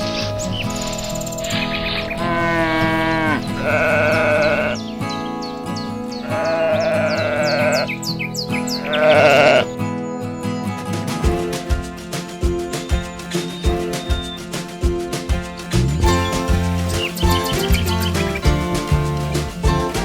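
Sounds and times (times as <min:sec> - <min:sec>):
background music: 0:00.0 - 0:20.0
animal bleating: 0:01.4 - 0:04.9, 0:06.2 - 0:08.0, 0:08.8 - 0:09.7.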